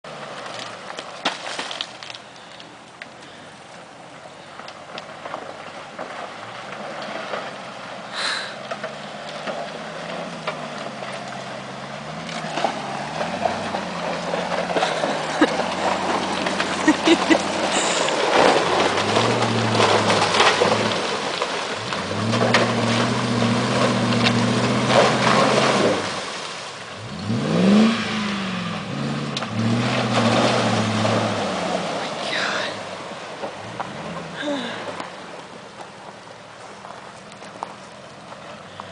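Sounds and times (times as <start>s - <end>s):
wheels crunching and knocking: 0.0s - 38.9s
engine revving: 8.7s - 35.0s.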